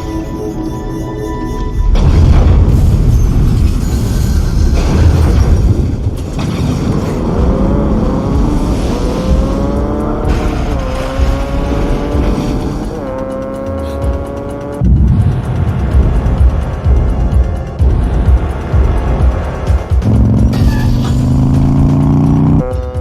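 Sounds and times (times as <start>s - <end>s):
heavy vehicle engines rumbling: 0.0s - 22.7s
engine whine revving up: 6.9s - 22.7s.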